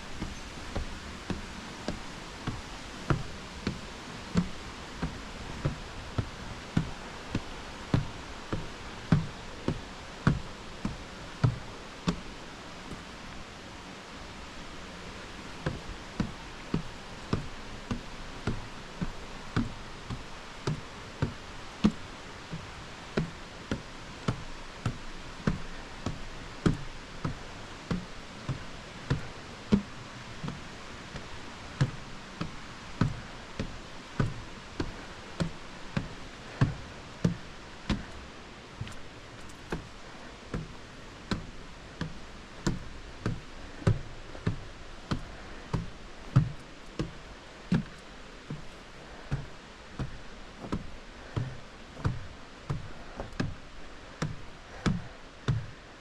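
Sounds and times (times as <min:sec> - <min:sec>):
footsteps on trail steps: 0:00.0 - 0:56.0.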